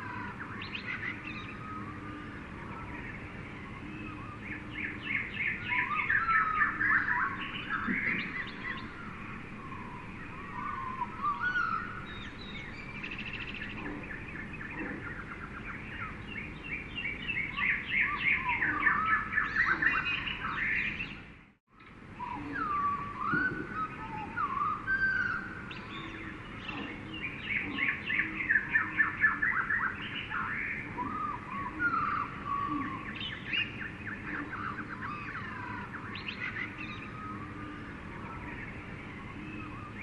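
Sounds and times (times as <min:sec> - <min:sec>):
birds chirping and trilling: 0:00.0 - 0:40.0
steady background hum: 0:00.0 - 0:40.0.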